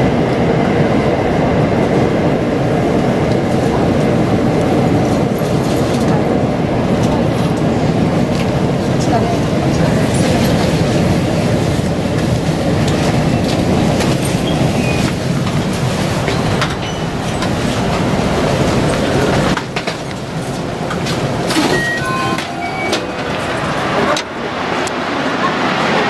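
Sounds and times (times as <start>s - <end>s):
train wheels and motors rumbling: 0.0s - 26.0s
short descending beeping tones: 21.6s - 23.5s.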